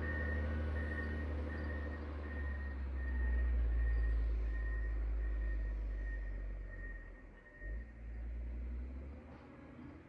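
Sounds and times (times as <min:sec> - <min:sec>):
faint high beeps: 0:00.0 - 0:07.9
diesel engine rumbling: 0:00.0 - 0:10.0.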